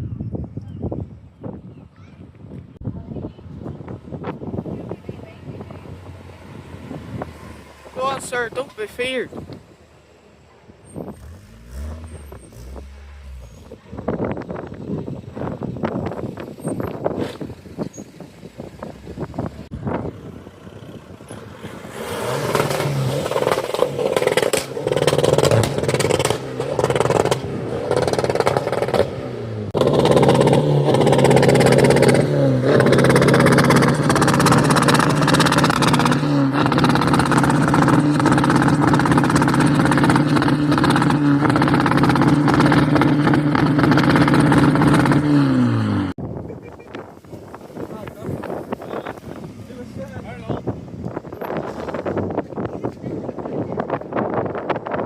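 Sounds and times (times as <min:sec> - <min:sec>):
car engine revving: 0:04.3 - 0:09.9, 0:10.7 - 0:46.2.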